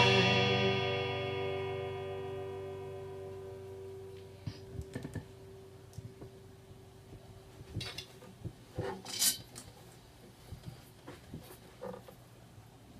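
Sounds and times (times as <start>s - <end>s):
acoustic guitar note ringing: 0.0s - 4.7s.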